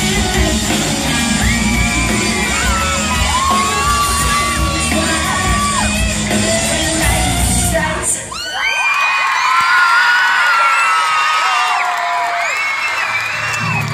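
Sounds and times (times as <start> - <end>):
live rock band: 0.0 - 8.3
singer holding long notes: 0.0 - 8.4
audience yelling: 0.0 - 13.9.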